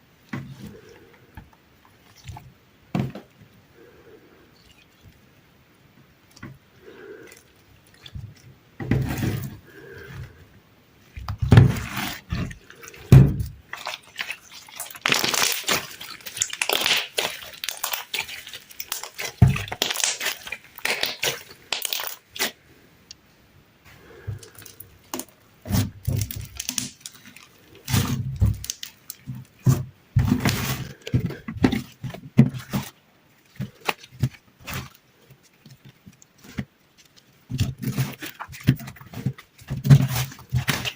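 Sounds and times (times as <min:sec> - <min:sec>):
slime squeezed by hand: 0:13.7 - 0:22.6.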